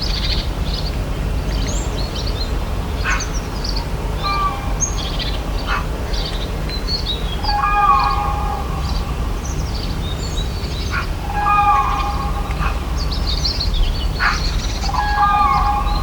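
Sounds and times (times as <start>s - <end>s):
birds chirping: 0.0s - 16.0s
lower bird call: 7.0s - 16.0s.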